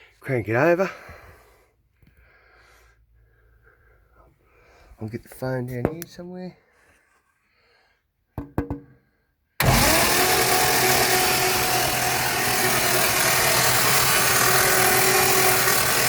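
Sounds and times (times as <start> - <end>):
engine cranking and turning over: 9.6 - 16.0.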